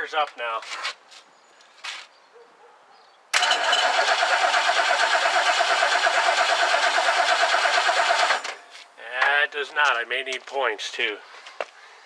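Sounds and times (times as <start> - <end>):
starter motor cranking engine: 3.4 - 8.6.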